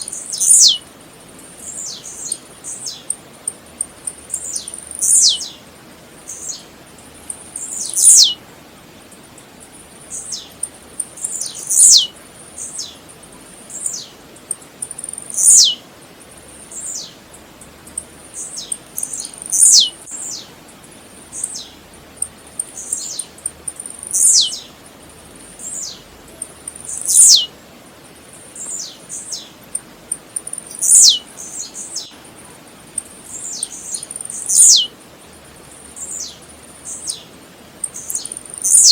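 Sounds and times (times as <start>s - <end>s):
bird singing descending notes: 0.2s - 0.8s, 7.6s - 8.4s, 11.3s - 12.1s, 15.3s - 15.8s, 18.4s - 20.4s, 30.7s - 32.1s, 33.5s - 34.9s.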